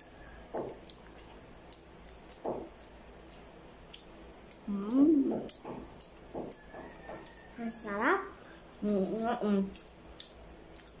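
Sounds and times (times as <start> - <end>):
children chewing bread: 0.0 - 11.0
wet mouth smacking and clicking: 0.7 - 2.4.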